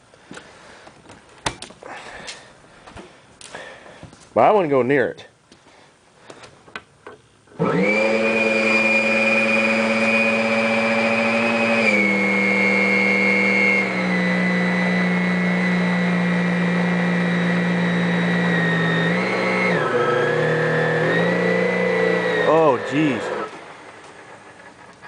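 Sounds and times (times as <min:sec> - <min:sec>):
vacuum cleaner motor whining: 0:07.5 - 0:25.0.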